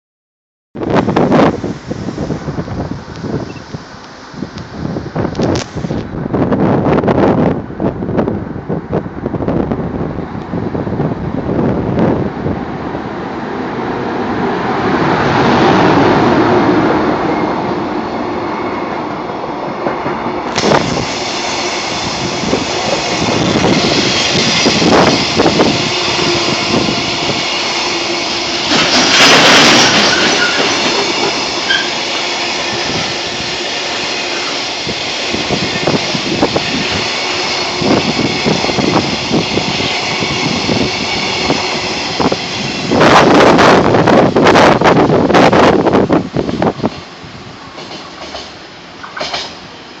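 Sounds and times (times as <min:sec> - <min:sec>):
freight train passing: 0:00.8 - 0:50.0
wheels clattering on rails: 0:28.0 - 0:32.1, 0:46.5 - 0:49.7.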